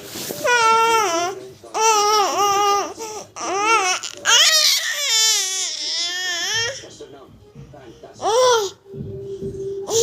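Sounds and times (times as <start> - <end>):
baby crying and squealing: 0.4 - 6.8.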